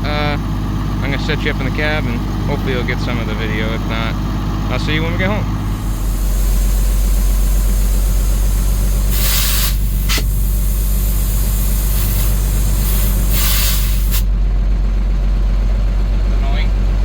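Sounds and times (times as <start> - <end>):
diesel engine idling: 0.0 - 17.0
air hissing bursts: 5.7 - 14.3.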